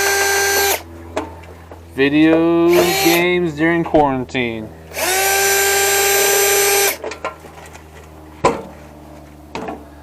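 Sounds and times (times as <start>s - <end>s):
power drill motor whining: 0.0s - 0.8s, 2.7s - 3.3s, 4.9s - 7.0s.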